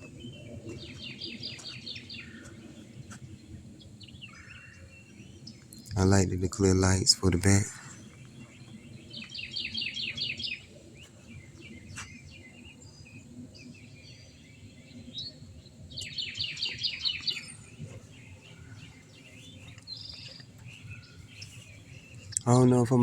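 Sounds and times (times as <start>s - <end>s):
songbird singing: 0.0s - 23.0s.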